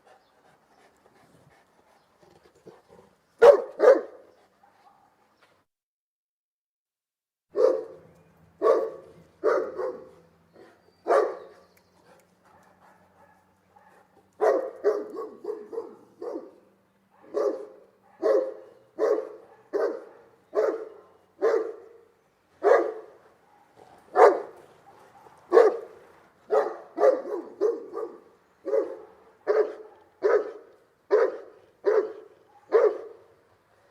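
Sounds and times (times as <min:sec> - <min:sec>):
large dog barking deeply: 0:03.4 - 0:05.1, 0:07.6 - 0:08.0, 0:08.6 - 0:11.7, 0:12.4 - 0:33.3.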